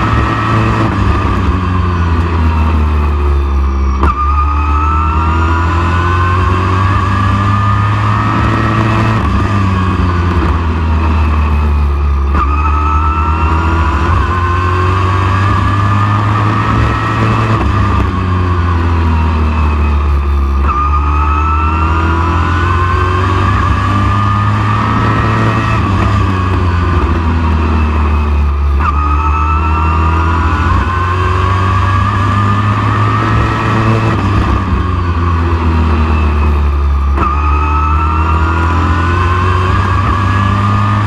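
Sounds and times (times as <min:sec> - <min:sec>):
race truck engine revving: 0:00.0 - 0:41.0
constant low rumble: 0:08.3 - 0:12.8.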